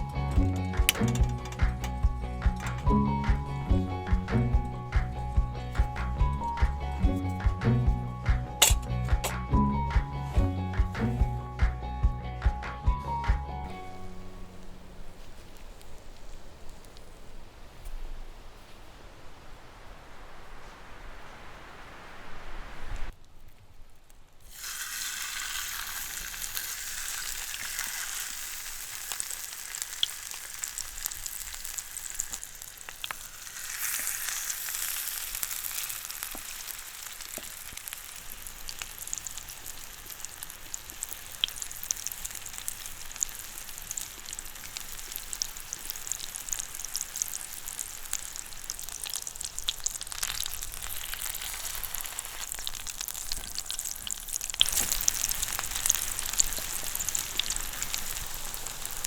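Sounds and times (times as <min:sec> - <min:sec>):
food sizzling in a pan: 0:24.4 - 0:59.0.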